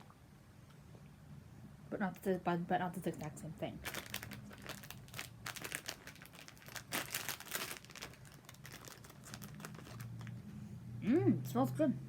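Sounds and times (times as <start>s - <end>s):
plastic wrapper crinkling: 3.2s - 10.5s.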